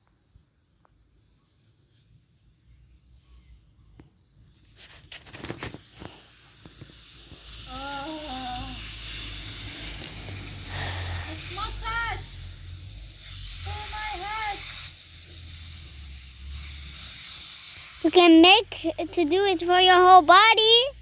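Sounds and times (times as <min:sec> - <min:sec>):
water poured over head: 0:05.7 - 0:18.0
person humming: 0:07.7 - 0:08.9.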